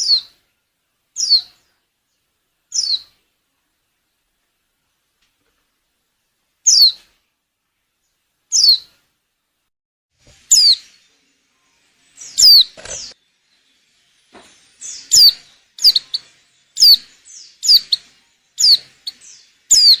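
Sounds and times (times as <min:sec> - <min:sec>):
bird downward-sweeping chirps: 0:00.0 - 0:00.4, 0:01.2 - 0:01.6, 0:02.7 - 0:03.2, 0:06.7 - 0:07.0, 0:08.5 - 0:08.9, 0:10.5 - 0:11.2, 0:12.2 - 0:13.7, 0:14.7 - 0:20.0.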